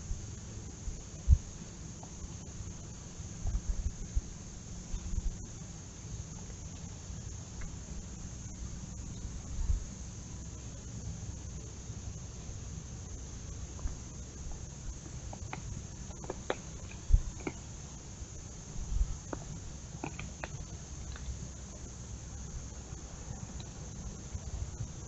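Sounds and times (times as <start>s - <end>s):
dull low thumps: 0.0s - 5.6s, 13.0s - 22.0s
high insect drone: 0.0s - 25.0s.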